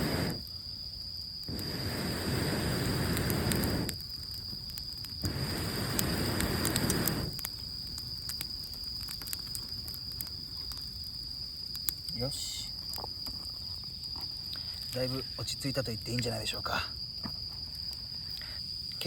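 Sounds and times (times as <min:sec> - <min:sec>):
rush of air noise: 0:00.0 - 0:00.5, 0:01.4 - 0:04.0, 0:05.2 - 0:07.4
wet wood fire crackling: 0:00.0 - 0:19.0.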